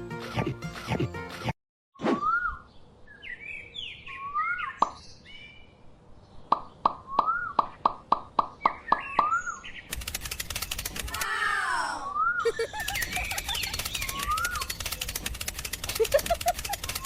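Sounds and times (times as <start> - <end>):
bird-like chirps: 2.1 - 10.0, 12.2 - 16.0
rapid clicking buzz: 9.9 - 11.2, 12.7 - 17.0.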